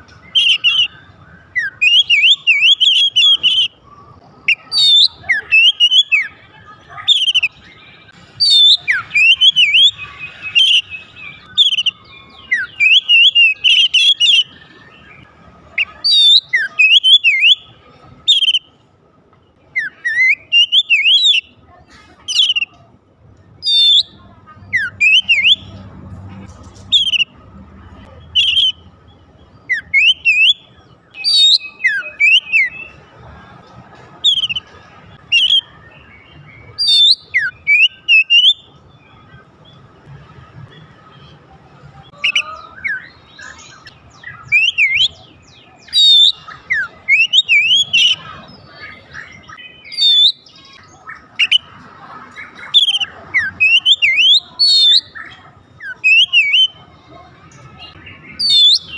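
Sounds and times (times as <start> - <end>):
bird singing whistled phrases: 0.2 - 3.8, 4.4 - 6.4, 7.0 - 17.7, 18.3 - 18.7, 19.8 - 21.6, 22.3 - 22.8, 23.6 - 25.8, 26.9 - 27.3, 28.1 - 28.8, 29.6 - 33.0, 34.2 - 34.7, 35.3 - 38.7, 42.1 - 48.4, 49.1 - 51.7, 52.6 - 56.8, 57.8 - 58.9.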